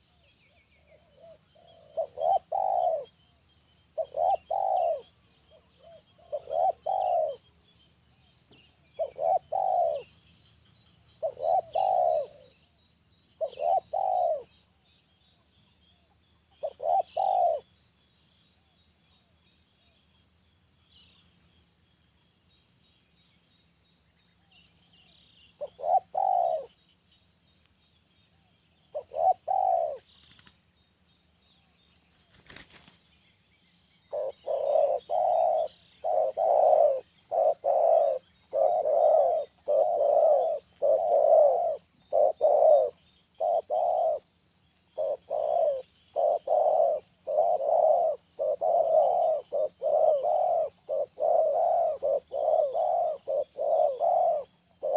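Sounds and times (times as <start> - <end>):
dove cooing: 0.0 - 3.2, 3.9 - 7.6, 8.7 - 10.2, 11.2 - 12.6, 13.4 - 14.5, 16.5 - 17.7, 25.6 - 26.8, 28.9 - 30.5, 34.1 - 44.3, 44.9 - 54.9.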